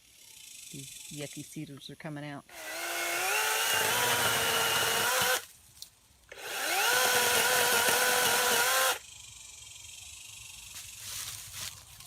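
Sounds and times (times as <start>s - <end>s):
electric chainsaw motor whine: 2.5s - 5.5s, 6.3s - 9.1s.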